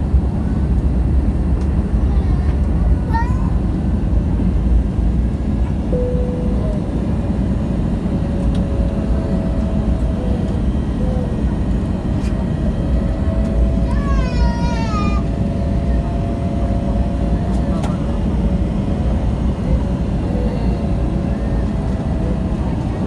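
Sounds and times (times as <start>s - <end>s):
airliner engines rumbling: 0.0s - 23.0s
faint steady tones: 5.9s - 14.2s.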